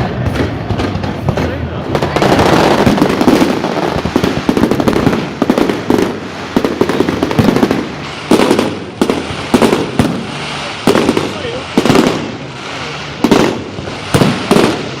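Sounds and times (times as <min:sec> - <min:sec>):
fireworks bangs and crackles: 0:00.0 - 0:15.0
fireworks booms: 0:00.0 - 0:15.0.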